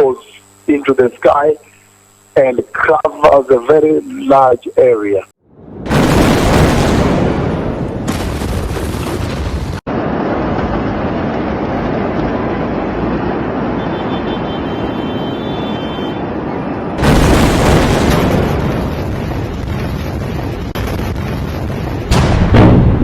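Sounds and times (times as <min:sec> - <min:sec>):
explosion rumble and roar: 0:05.5 - 0:13.7, 0:16.8 - 0:23.0
loud blast: 0:05.6 - 0:10.4, 0:16.9 - 0:23.0.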